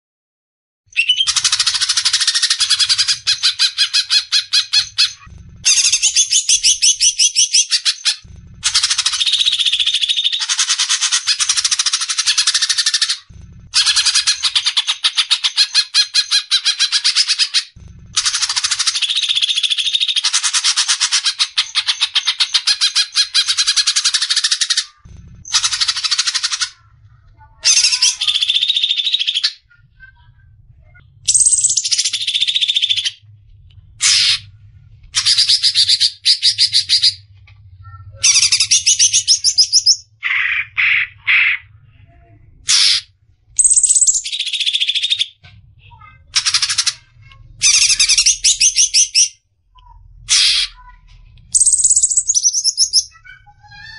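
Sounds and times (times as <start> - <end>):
bird singing rapid trills: 0.9 - 5.1, 5.7 - 13.2, 27.7 - 29.7, 31.3 - 33.2, 43.6 - 45.4, 51.5 - 53.4.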